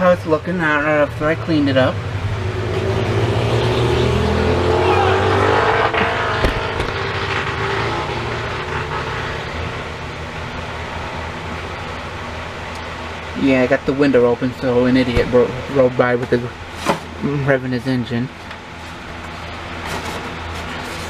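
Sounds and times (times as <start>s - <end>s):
vehicle engine revving: 1.0s - 13.4s.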